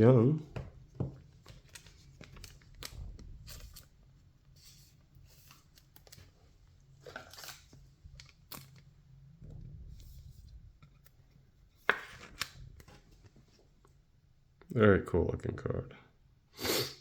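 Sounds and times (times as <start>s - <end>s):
faint low hum: 0.0s - 11.8s
cards being flipped through: 1.3s - 4.0s, 4.6s - 6.4s, 7.0s - 8.9s, 10.0s - 13.4s.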